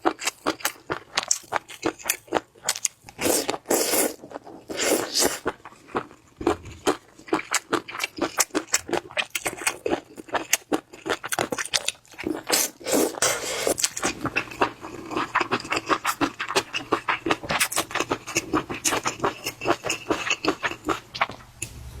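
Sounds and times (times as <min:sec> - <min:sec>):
wet smacking and chewing: 0:00.0 - 0:21.4
slurping: 0:03.2 - 0:05.6, 0:12.2 - 0:21.4.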